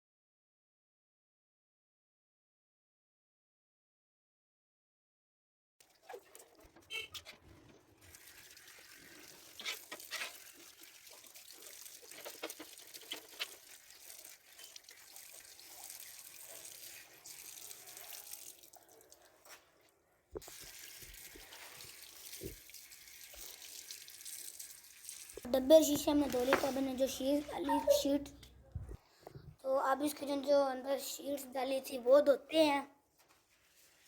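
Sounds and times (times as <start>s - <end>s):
tap water running and splashing: 5.8s - 19.7s, 20.4s - 28.1s.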